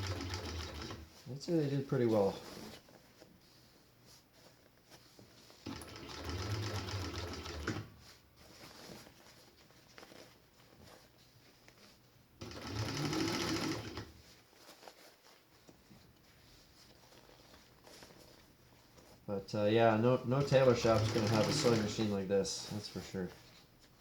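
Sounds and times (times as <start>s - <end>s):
sewing machine stitching: 0.0s - 1.1s, 5.6s - 8.0s, 12.4s - 14.1s, 20.4s - 22.2s.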